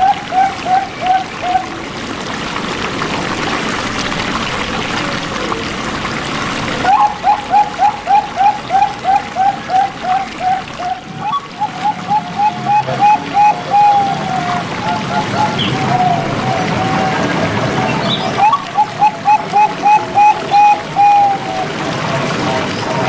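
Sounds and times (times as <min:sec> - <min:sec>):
dove cooing: 0:00.0 - 0:01.9, 0:06.8 - 0:21.8
running water trickling: 0:00.0 - 0:23.0.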